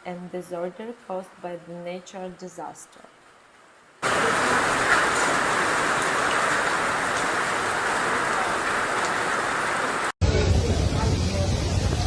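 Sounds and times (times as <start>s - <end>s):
heavy rain falling: 3.2s - 12.0s.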